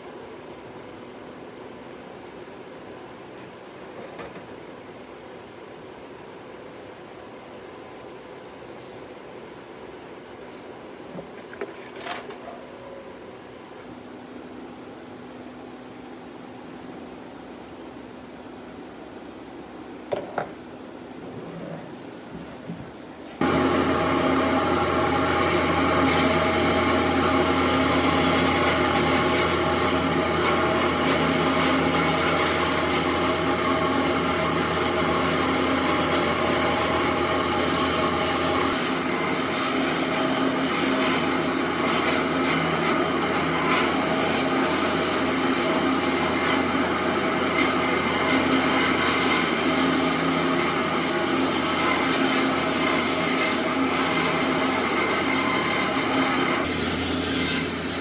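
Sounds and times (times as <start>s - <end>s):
motor hum: 23.4s - 58.0s
power tool cutting wood: 23.4s - 58.0s.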